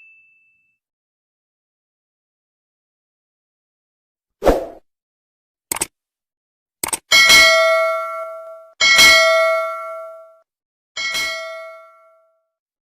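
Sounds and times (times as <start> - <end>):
bell-like ding: 0.0 - 0.8, 7.2 - 10.4, 11.0 - 12.4
short clicks: 5.7 - 5.9, 6.8 - 7.1.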